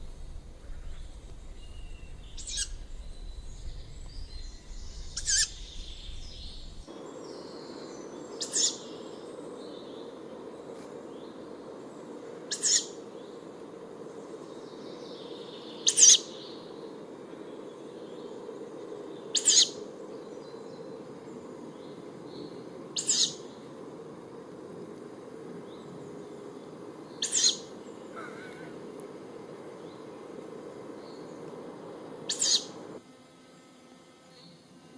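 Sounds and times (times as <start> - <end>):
owl hissing begging call: 0.6 - 6.8, 8.4 - 8.8, 12.4 - 13.0, 15.8 - 16.4, 19.3 - 20.0, 23.0 - 23.5, 27.2 - 28.8, 32.2 - 32.8.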